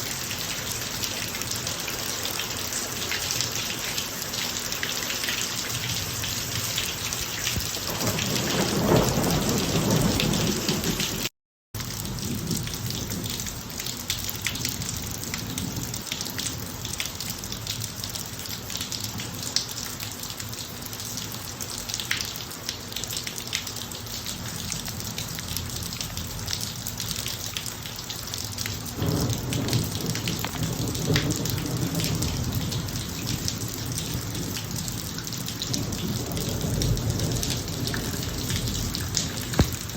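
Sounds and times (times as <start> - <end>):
steady rain on a driveway: 0.0 - 39.9
thunder rumbling: 7.6 - 11.3, 28.9 - 35.0, 35.6 - 39.9.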